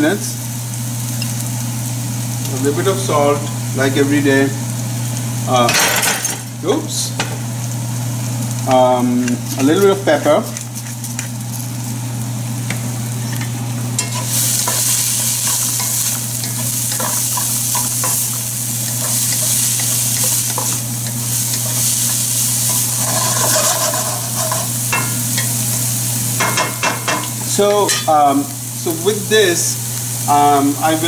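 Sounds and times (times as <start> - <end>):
vegetables sizzling in oil: 0.0 - 31.0
spatula scraping and tapping pan: 13.3 - 25.6.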